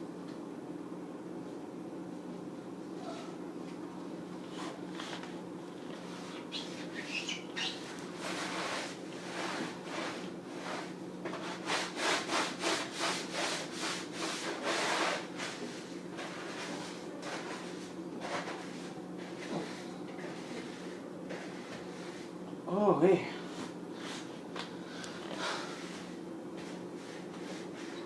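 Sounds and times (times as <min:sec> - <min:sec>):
sponge scrubbing: 0:06.1 - 0:22.3, 0:25.5 - 0:28.0.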